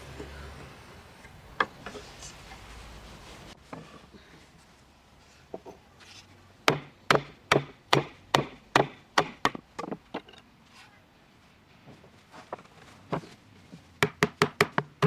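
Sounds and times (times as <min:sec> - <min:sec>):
tool knocking on wood: 0:06.7 - 0:10.0, 0:14.0 - 0:15.0.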